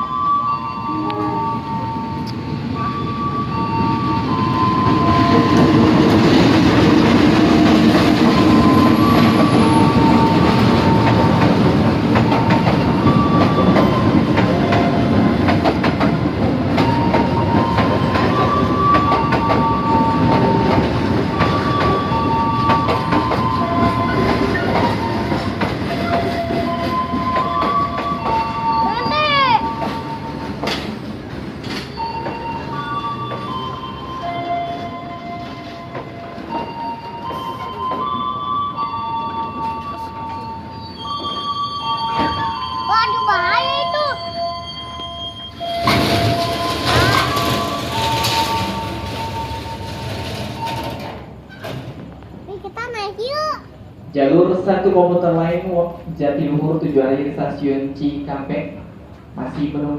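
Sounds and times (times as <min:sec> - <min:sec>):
train rumble and wheel clatter: 0:00.0 - 0:59.9
two-tone warning chime: 0:32.0 - 0:50.9.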